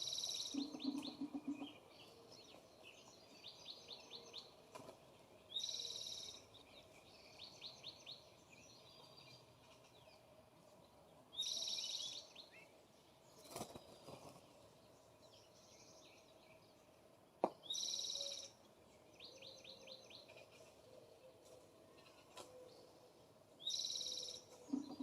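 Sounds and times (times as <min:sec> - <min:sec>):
faint bird twittering: 0:05.5 - 0:10.2, 0:11.3 - 0:12.7, 0:17.6 - 0:25.0.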